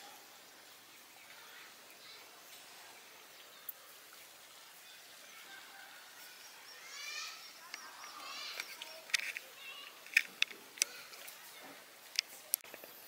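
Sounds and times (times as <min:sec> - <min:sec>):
birds calling: 0:05.3 - 0:11.7.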